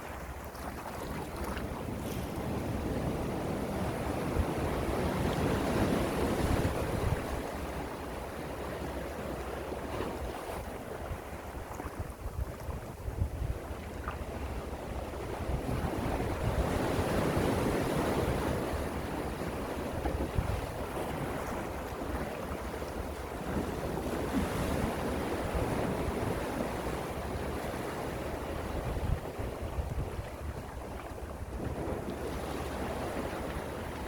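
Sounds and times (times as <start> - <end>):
sea waves washing ashore: 0.0 - 34.0
wind rumbling on microphone: 0.0 - 34.0.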